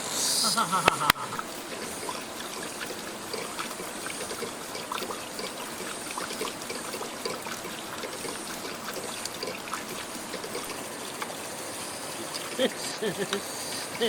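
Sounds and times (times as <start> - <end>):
water trickling and babbling: 0.5 - 14.0.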